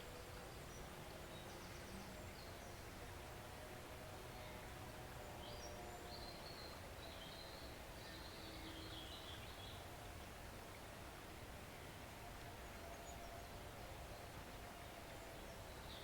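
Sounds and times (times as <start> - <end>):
forest stream flowing: 0.0 - 16.0.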